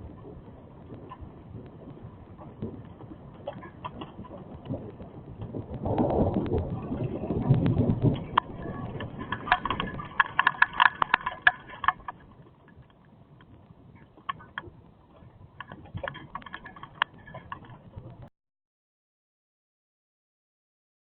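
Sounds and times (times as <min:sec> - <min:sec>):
rain hiss: 0:00.0 - 0:18.0
hailstones hitting a hard surface: 0:03.4 - 0:12.2.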